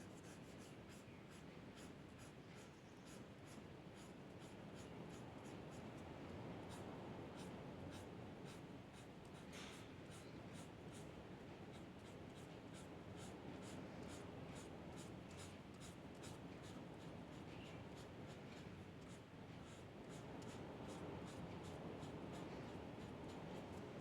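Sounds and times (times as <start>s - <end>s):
low room hum: 0.0s - 24.0s
drawing tool scratching on paper: 19.0s - 23.9s.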